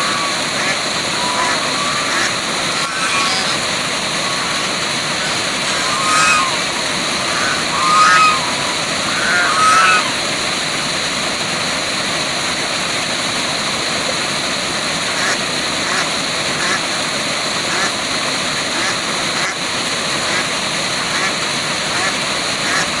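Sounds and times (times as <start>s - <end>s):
short animal calls: 0.0s - 10.4s
waterfall rushing: 0.0s - 23.0s.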